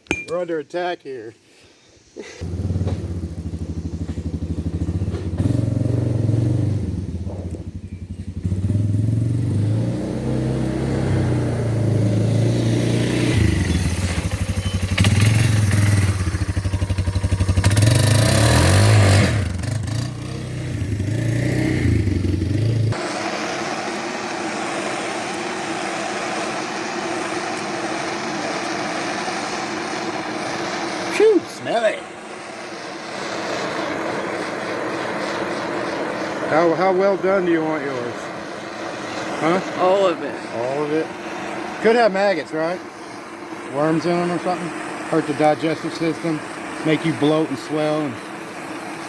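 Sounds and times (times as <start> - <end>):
steady hiss: 0.0 - 8.5, 20.6 - 49.0
small engine revving: 2.4 - 49.0.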